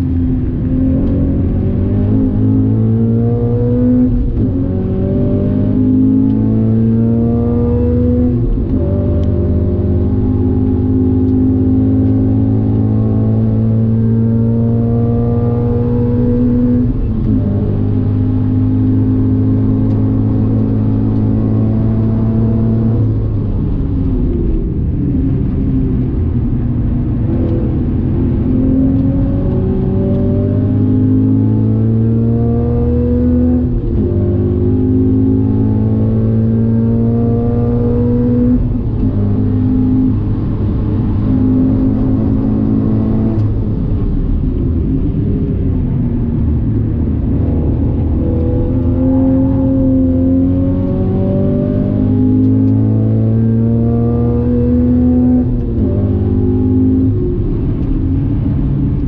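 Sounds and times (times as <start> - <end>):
car engine at full throttle: 0.0 - 59.0.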